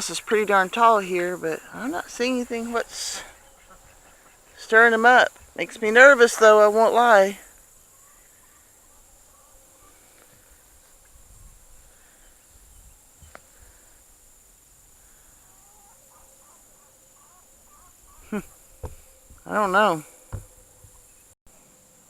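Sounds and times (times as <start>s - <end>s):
bird chirps: 0.0s - 10.1s, 15.4s - 21.4s
high insect drone: 0.0s - 22.0s.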